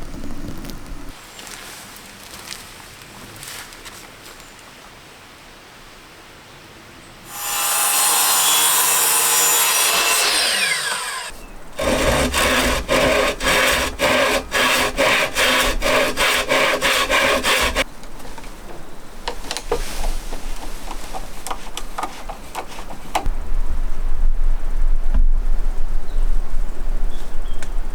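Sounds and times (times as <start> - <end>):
power saw whining: 7.3 - 17.8
hand saw strokes through wood: 7.3 - 17.9.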